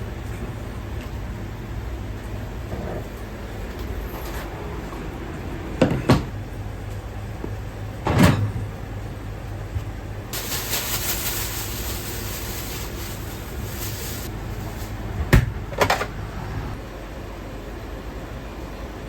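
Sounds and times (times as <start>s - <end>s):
steady low hum: 0.0s - 19.0s
hiss: 10.4s - 14.3s.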